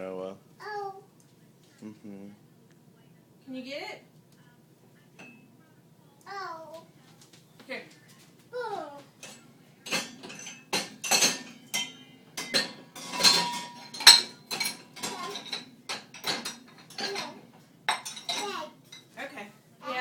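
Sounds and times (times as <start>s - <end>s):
dishes and cutlery clattering: 9.2s - 19.2s.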